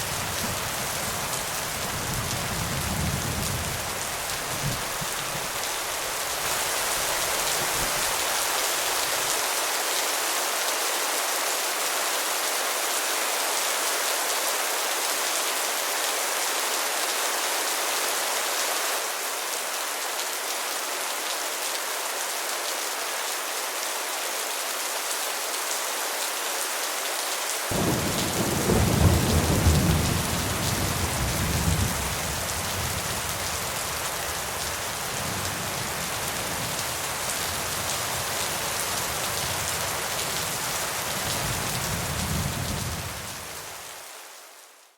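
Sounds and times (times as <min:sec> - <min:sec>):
steady rain falling: 0:00.0 - 0:44.9
thunder rumbling: 0:27.7 - 0:32.3.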